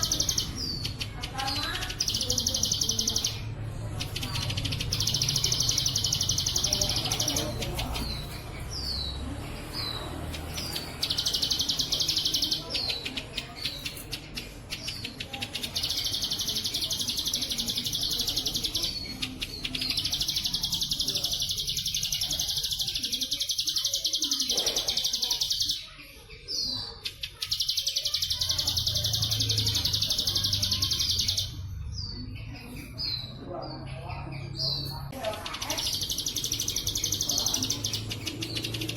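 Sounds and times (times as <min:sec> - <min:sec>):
bird chirps: 0:00.0 - 0:38.9.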